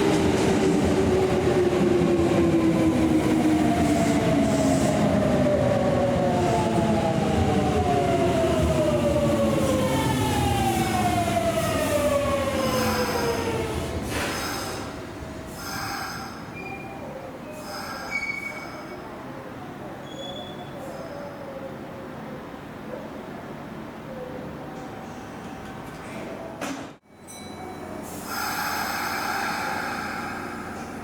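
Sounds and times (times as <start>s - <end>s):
high-pitched brake squeal: 16.4s - 19.1s, 20.0s - 21.1s.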